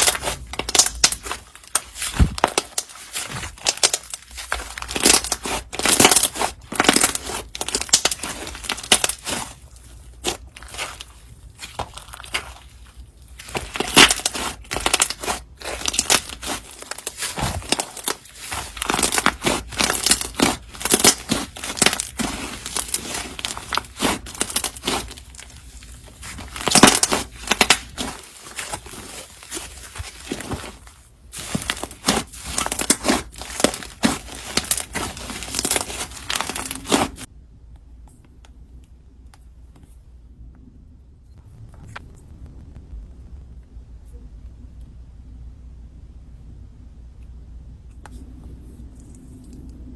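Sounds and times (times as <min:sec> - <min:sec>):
sticky slime crackling and tearing: 0:00.0 - 0:37.3.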